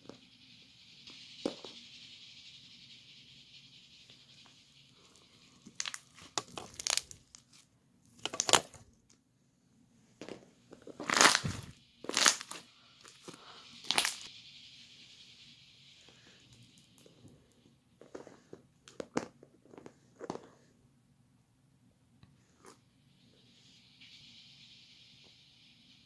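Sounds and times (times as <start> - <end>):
crinkling and tearing noises: 5.8 - 7.6, 11.0 - 12.5.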